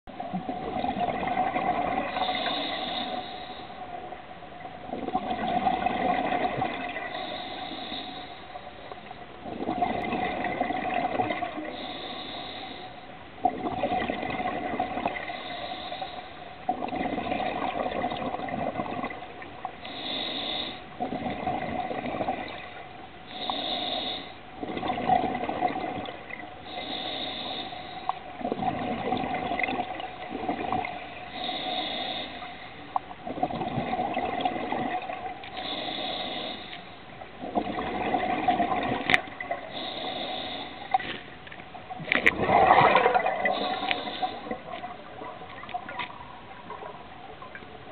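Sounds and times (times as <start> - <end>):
exhaled bubbles rushing: 0.1 - 2.5, 4.8 - 7.1, 9.4 - 11.7, 13.4 - 15.4, 16.7 - 19.4, 21.0 - 22.8, 24.6 - 26.4, 28.3 - 31.3, 33.2 - 35.4, 37.4 - 39.7, 41.8 - 47.6
regulator hiss on inhale: 2.1 - 4.2, 7.0 - 9.2, 11.6 - 13.2, 15.2 - 16.6, 19.8 - 21.0, 23.2 - 24.5, 26.6 - 28.3, 31.1 - 33.0, 35.4 - 37.2, 39.6 - 41.3, 43.4 - 45.0.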